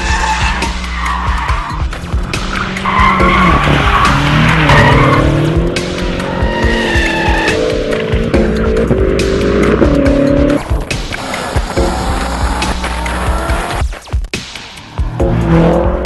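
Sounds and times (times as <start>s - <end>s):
tyres squealing: 0.0s - 5.4s
car engine revving: 0.0s - 14.0s, 14.6s - 16.0s
background music: 0.0s - 16.0s.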